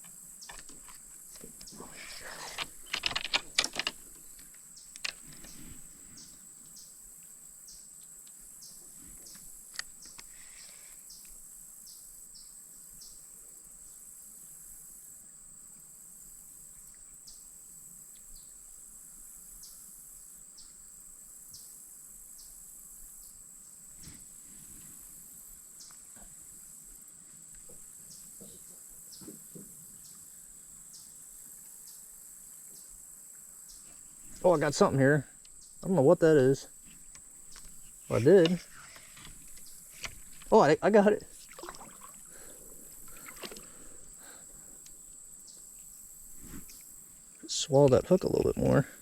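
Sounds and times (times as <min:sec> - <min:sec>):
insects trilling: 0:00.0 - 0:49.0
sharp clicks: 0:02.5 - 0:04.0.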